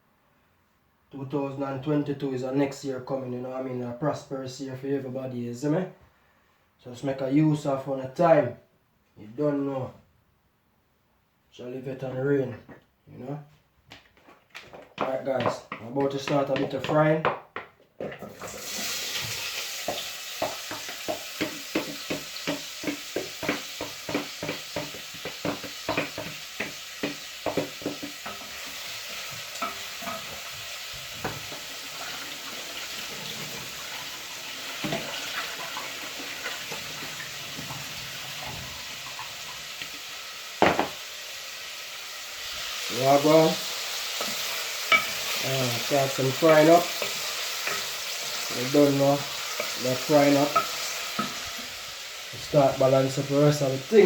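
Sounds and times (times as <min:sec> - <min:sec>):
spoon stirring and knocking pot: 0:15.0 - 0:18.7, 0:19.8 - 0:30.6, 0:44.2 - 0:45.4, 0:46.4 - 0:48.5, 0:49.3 - 0:51.5
food sizzling in hot oil: 0:18.3 - 0:54.0.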